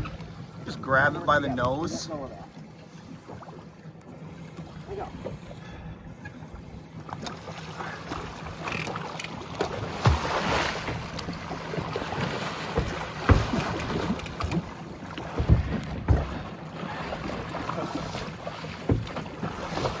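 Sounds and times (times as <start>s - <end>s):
water splashing: 0.0s - 5.8s, 6.5s - 20.0s
water along boat hull: 0.0s - 20.0s
dull knocks: 12.7s - 16.5s, 18.8s - 20.0s.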